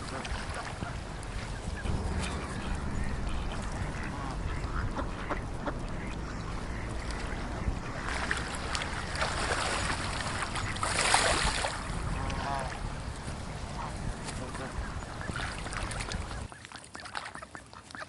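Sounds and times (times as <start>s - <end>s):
low rumble: 0.0s - 16.5s
waterfowl honking: 0.0s - 18.0s
rushing noise: 1.1s - 10.6s.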